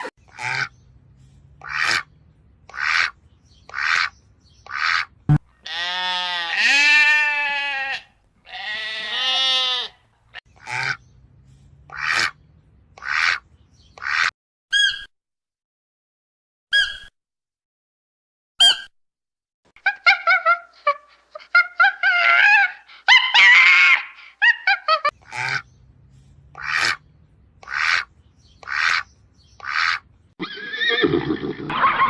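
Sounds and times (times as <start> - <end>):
goat bleating: 5.6 - 10.0.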